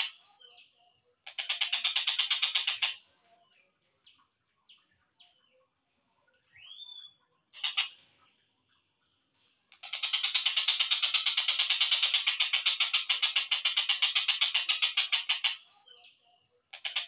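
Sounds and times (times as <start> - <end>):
bird rattling trill: 9.8 - 15.6.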